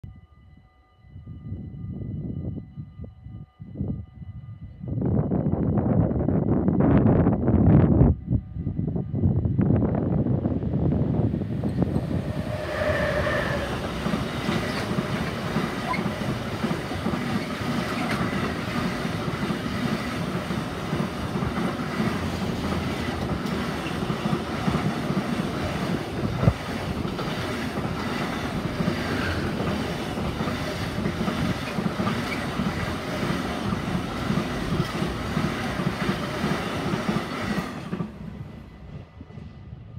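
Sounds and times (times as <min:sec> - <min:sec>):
freight train passing: 0:00.5 - 0:39.9
wheels clickety-clack on rails: 0:11.2 - 0:39.6.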